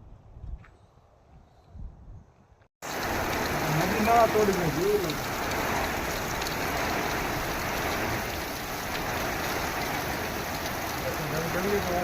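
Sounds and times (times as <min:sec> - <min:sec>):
wind rumbling on microphone: 0:00.0 - 0:12.0
heavy rain: 0:02.8 - 0:12.0.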